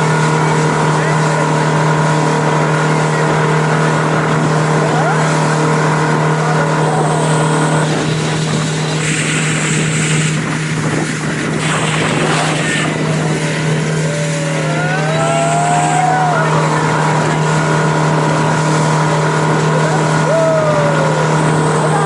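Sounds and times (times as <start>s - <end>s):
motorboat engine droning: 0.0s - 22.0s
rushing noise: 5.4s - 22.0s.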